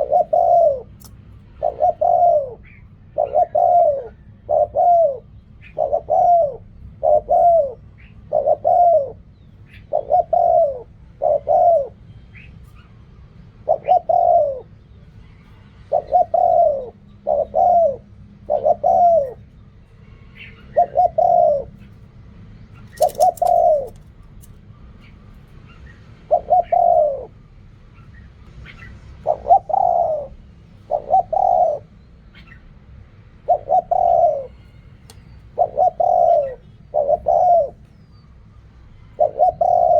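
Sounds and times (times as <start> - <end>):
dove cooing: 0.0 - 12.0, 13.6 - 14.7, 15.9 - 19.6, 20.5 - 21.9, 22.8 - 24.5, 26.3 - 28.1, 28.7 - 32.6, 33.4 - 38.3, 39.2 - 39.9.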